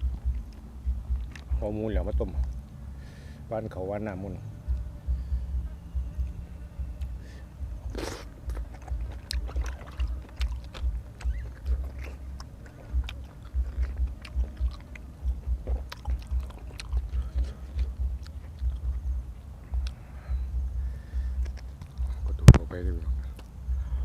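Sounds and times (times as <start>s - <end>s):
man chewing food: 0.0s - 2.8s, 4.7s - 24.0s.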